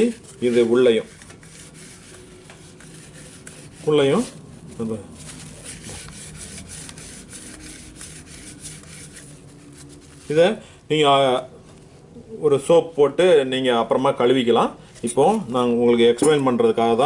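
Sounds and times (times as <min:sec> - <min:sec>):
cloth rubbing inside metal jar: 0:00.0 - 0:10.6.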